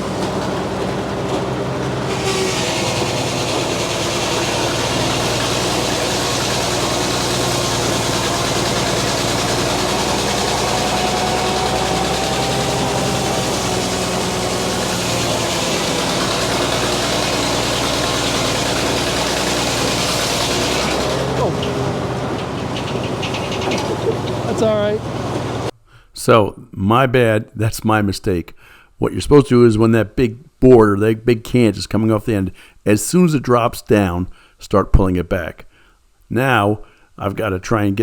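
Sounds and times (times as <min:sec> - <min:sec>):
circular saw cutting log: 0:00.0 - 0:25.7
sawmill power unit droning: 0:00.0 - 0:25.7.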